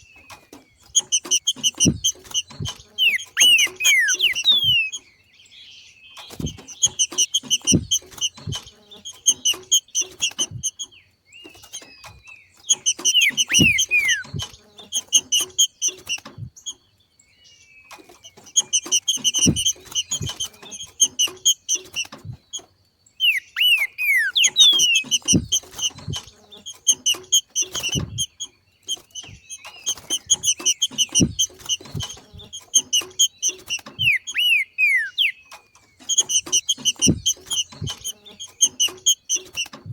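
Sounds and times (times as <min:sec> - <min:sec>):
bird chattering call: 0:01.0 - 0:05.0, 0:12.7 - 0:16.2, 0:23.2 - 0:39.6
light low thumps: 0:01.1 - 0:04.9, 0:06.3 - 0:08.8, 0:19.2 - 0:20.6, 0:36.4 - 0:38.1
quick falling whistles: 0:03.0 - 0:05.0, 0:13.1 - 0:14.4.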